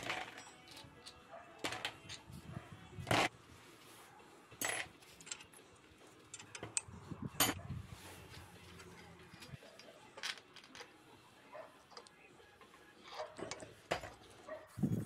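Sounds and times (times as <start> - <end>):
metallic clinks and knocks: 0.0 - 2.3, 4.6 - 7.7, 13.1 - 14.5.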